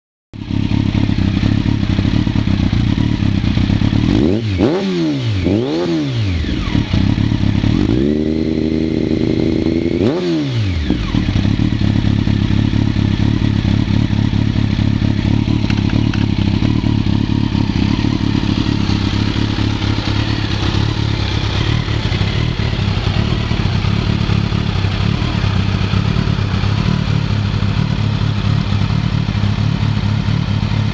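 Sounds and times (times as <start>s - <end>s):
motorcycle engine idling and revving: 0.4s - 30.9s.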